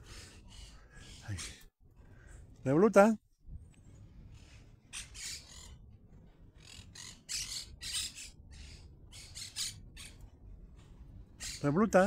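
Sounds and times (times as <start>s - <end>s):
bird harsh squawks: 4.4s - 5.8s, 6.6s - 10.2s, 11.4s - 11.8s.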